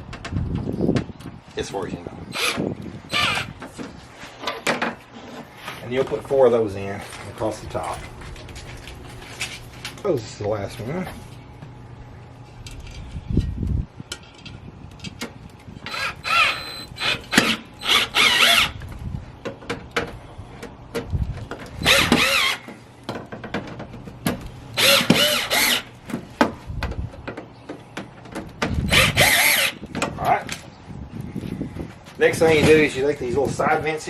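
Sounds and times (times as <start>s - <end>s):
cordless drill whirring: 2.3s - 3.5s, 15.9s - 18.8s, 21.8s - 22.6s, 24.8s - 25.9s, 28.9s - 29.8s.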